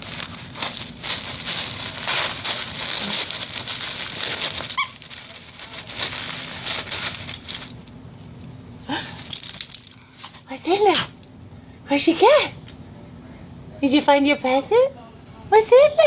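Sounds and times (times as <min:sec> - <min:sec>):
wrapping paper tearing: 0:00.0 - 0:07.8
squeaky toy squeaking: 0:04.7 - 0:05.0.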